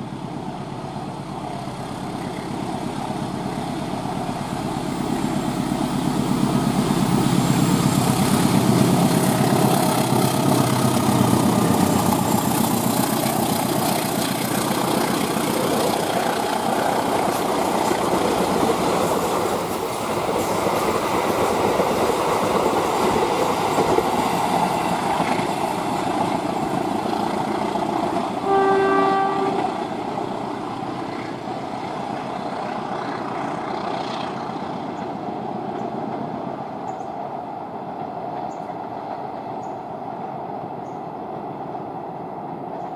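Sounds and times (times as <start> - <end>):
train wheels rushing on rails: 0.0 - 42.9
train horn blast: 28.4 - 29.8.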